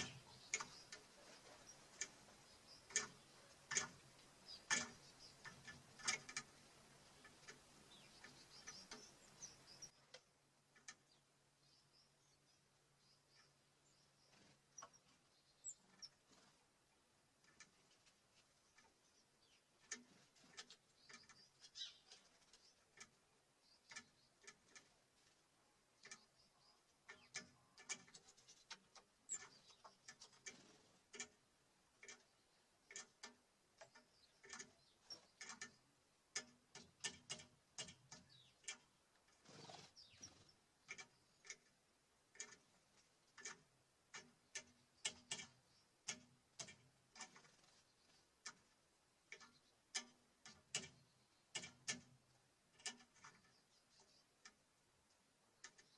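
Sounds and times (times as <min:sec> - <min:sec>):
high bird chirp: 0:00.0 - 0:10.0, 0:11.1 - 0:16.2, 0:20.9 - 0:22.8, 0:39.5 - 0:41.5
birds pecking at feeder: 0:00.0 - 0:55.9.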